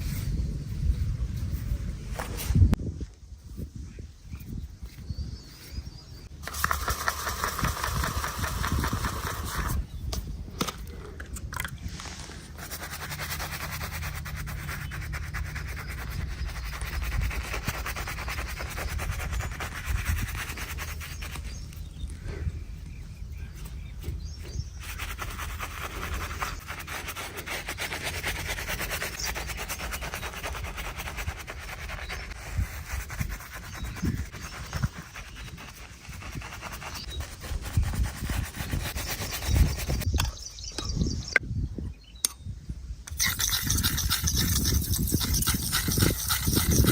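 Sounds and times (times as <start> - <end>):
razor scraping hair and stubble: 6.4 - 9.8, 12.6 - 21.8, 23.6 - 40.1, 43.1 - 46.9.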